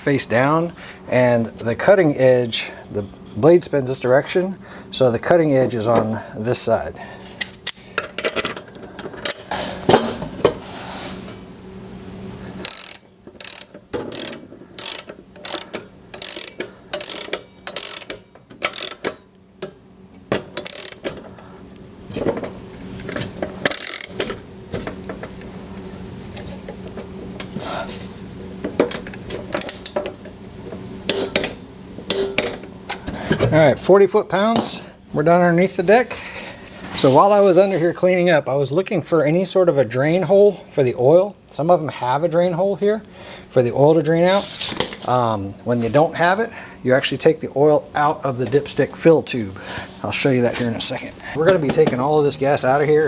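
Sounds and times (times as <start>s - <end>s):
socket ratchet clicking: 12.6s - 19.2s, 20.6s - 21.2s, 23.6s - 24.4s.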